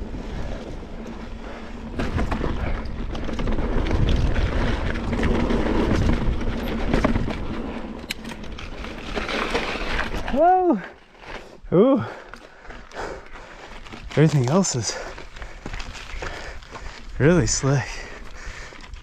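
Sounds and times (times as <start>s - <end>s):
wind rumble on microphone: 0.0s - 8.8s
bike clicks and rattles: 0.0s - 19.0s
bike tyre noise: 0.0s - 19.0s.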